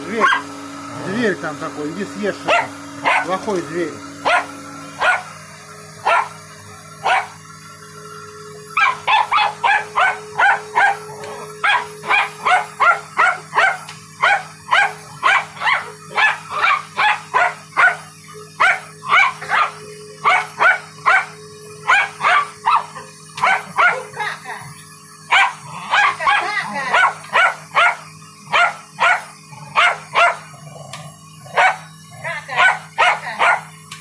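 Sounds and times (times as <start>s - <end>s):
vacuum cleaner humming: 0.0s - 34.0s
dog barking: 0.2s - 0.5s, 2.5s - 3.4s, 4.2s - 5.3s, 6.0s - 6.4s, 7.0s - 7.4s, 8.8s - 24.1s, 25.3s - 30.5s, 31.5s - 31.9s, 32.6s - 33.7s.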